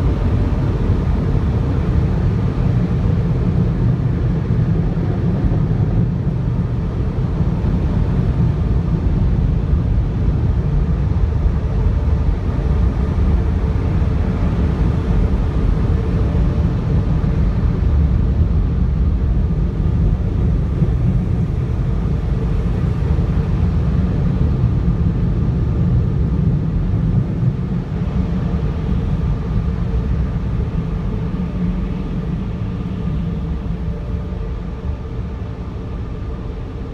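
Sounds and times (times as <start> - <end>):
faint hum: 11.1 - 36.9.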